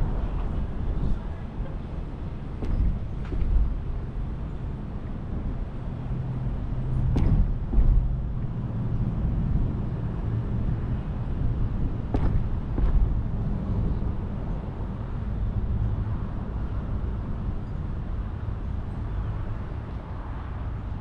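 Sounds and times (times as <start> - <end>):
car engine and road noise: 0.0 - 21.0
brief thumps: 7.1 - 8.2, 12.1 - 13.2.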